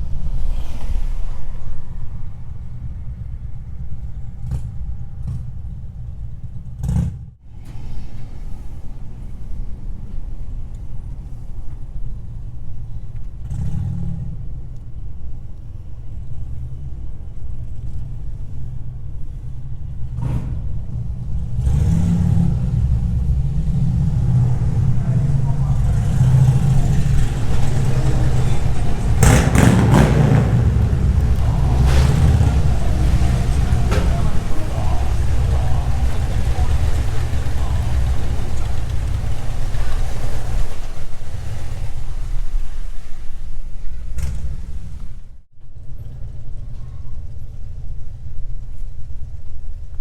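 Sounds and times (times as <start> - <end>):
pickup truck engine: 0.0 - 49.9
road rumble: 0.0 - 50.0.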